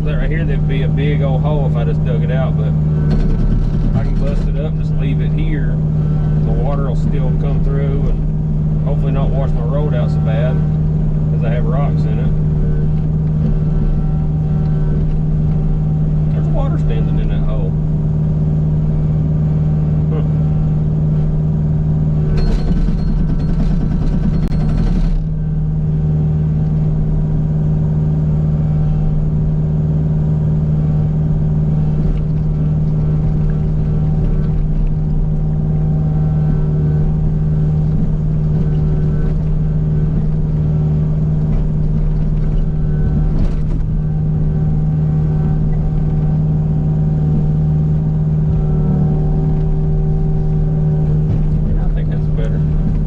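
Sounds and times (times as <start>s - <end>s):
harsh rattle: 0.0s - 17.6s, 22.1s - 25.5s
diesel engine droning: 0.0s - 53.0s
short clatter: 3.0s - 4.6s, 22.3s - 25.4s.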